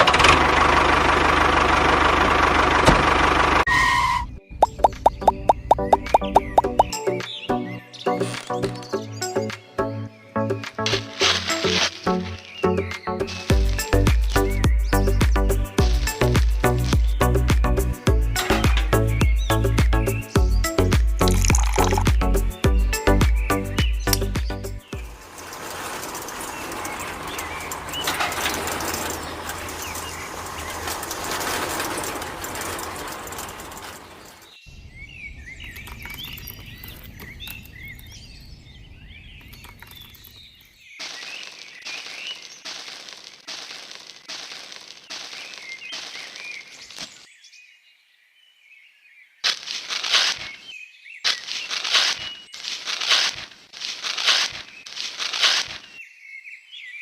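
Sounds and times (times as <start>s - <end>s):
small birds chirping: 4.3s - 57.0s
loud rattling noise: 21.2s - 22.3s, 24.9s - 34.5s.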